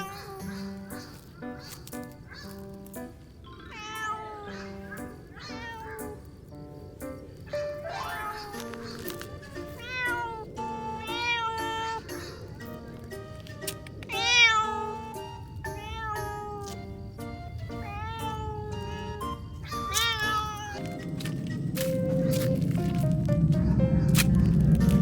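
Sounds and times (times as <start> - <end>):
cat meowing: 0.0 - 1.0, 3.5 - 6.2, 7.5 - 12.2, 14.1 - 17.0, 17.7 - 20.8
background music: 0.0 - 25.0.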